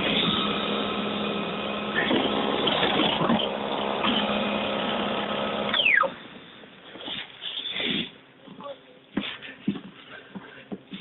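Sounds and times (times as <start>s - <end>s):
electric snowblower motor whining: 0.0s - 6.2s.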